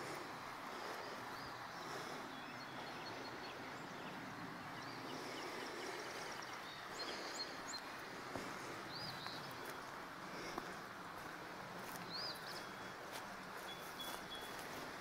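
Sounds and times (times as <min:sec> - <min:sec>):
small birds chirping: 0:00.0 - 0:15.0
soft footsteps on path: 0:05.1 - 0:15.0.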